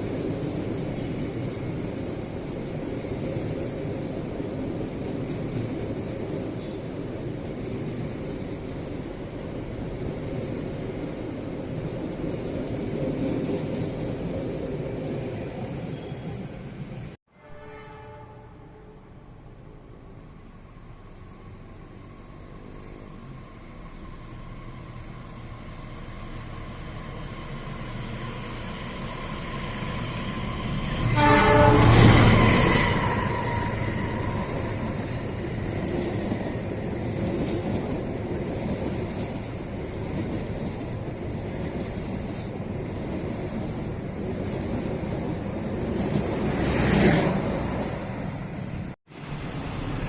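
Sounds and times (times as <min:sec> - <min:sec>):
train wheels rumbling on rails: 0:00.0 - 0:17.2, 0:19.4 - 0:50.0
train horn blast: 0:17.3 - 0:19.2, 0:31.0 - 0:32.6.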